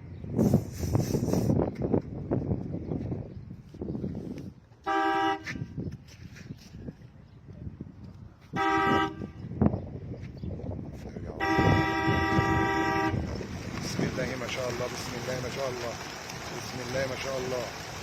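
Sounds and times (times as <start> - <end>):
vehicle horn blasts: 4.8 - 5.8, 8.6 - 9.5, 11.4 - 13.3.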